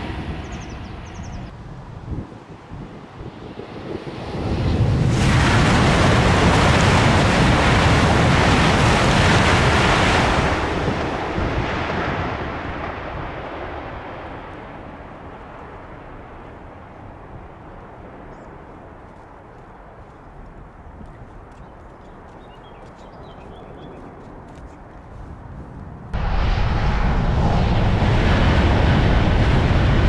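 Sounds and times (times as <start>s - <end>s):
high-speed train passing: 0.0s - 16.7s, 26.0s - 30.0s.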